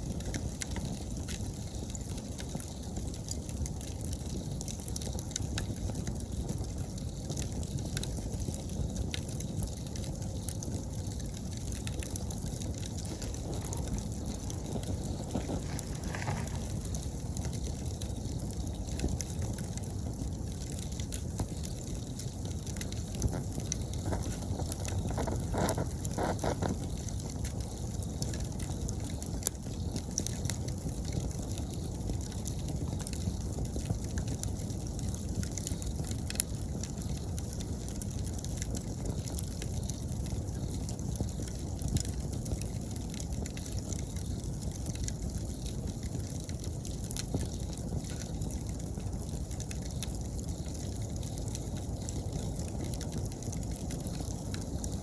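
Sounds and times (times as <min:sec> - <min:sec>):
campfire burning and crackling: 0:00.0 - 0:55.0
insects chirping: 0:12.3 - 0:19.4.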